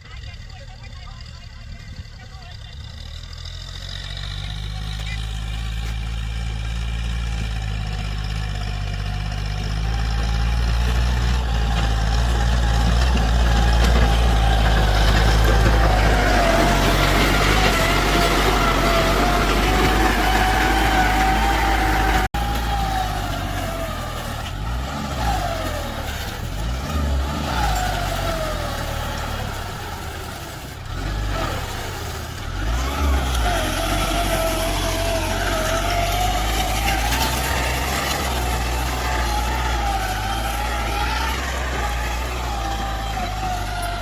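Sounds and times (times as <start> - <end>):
tractor engine whining under load: 0.0 - 44.0.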